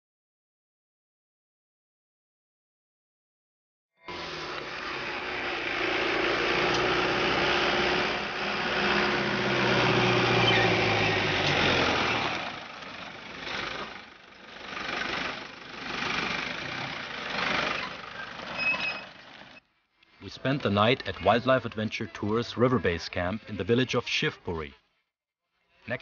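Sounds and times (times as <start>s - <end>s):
vehicle engine hum: 4.0s - 24.8s
vehicles passing: 4.1s - 24.8s.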